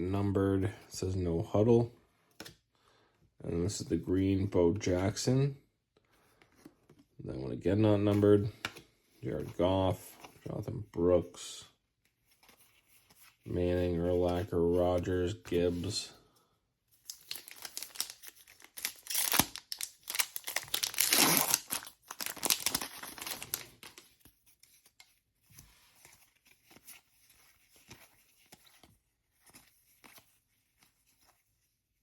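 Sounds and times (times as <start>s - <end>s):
cards rustling and clicking: 12.0s - 16.1s, 16.9s - 31.7s
wrapper tearing and crinkling: 17.1s - 24.0s.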